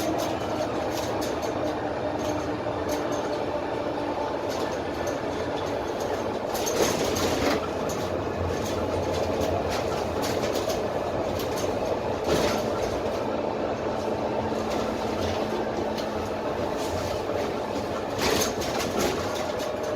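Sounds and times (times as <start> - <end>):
bus diesel engine drone: 0.0 - 19.9
body panels rattling: 4.4 - 19.9.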